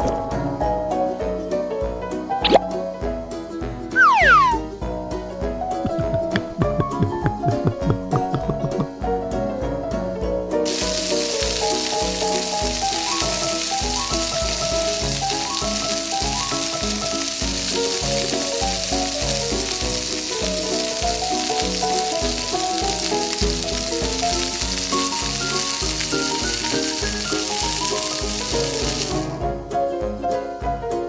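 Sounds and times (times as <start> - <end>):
frying sizzle: 2.4 - 2.6, 4.0 - 4.6, 5.8 - 9.0, 10.6 - 29.4
music with bass beat: 5.8 - 9.2.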